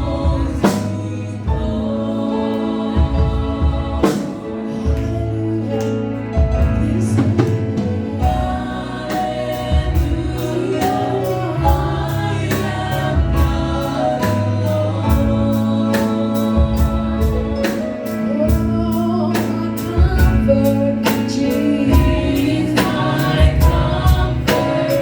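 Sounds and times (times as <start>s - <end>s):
strong bass: 0.0s - 17.7s, 18.3s - 25.0s
band with steady beat: 0.0s - 25.0s
group singing gospel: 0.0s - 25.0s.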